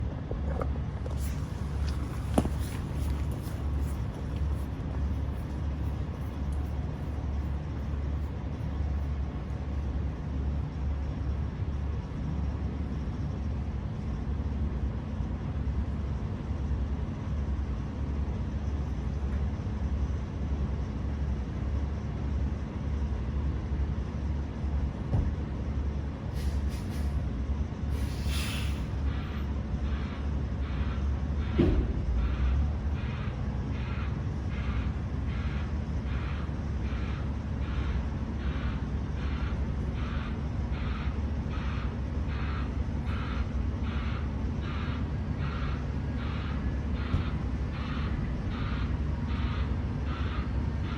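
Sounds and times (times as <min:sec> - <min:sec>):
diesel truck engine idling: 0:00.0 - 0:19.3, 0:24.3 - 0:50.9
short air hisses: 0:26.4 - 0:27.2, 0:27.9 - 0:29.0.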